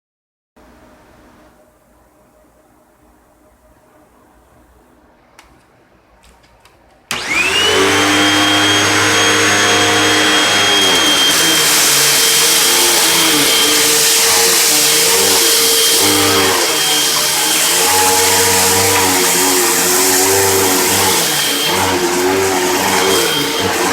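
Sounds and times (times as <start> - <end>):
vacuum cleaner motor whining: 7.1 - 23.9.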